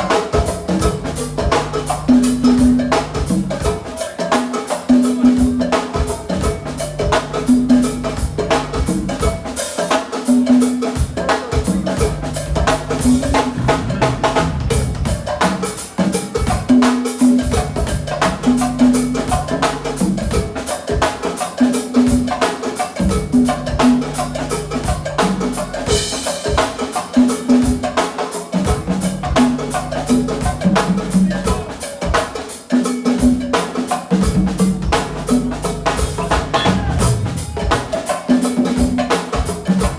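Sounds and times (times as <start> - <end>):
drum kit and percussion: 0.0 - 39.9
bass line: 0.7 - 3.6, 6.5 - 9.2, 11.7 - 15.7, 17.5 - 20.4, 23.0 - 26.0, 34.5 - 37.8.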